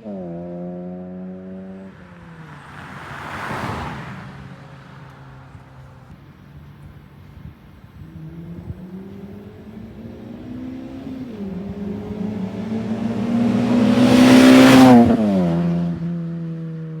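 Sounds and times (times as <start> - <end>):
car engine accelerating hard: 0.0 - 6.1, 7.7 - 16.6.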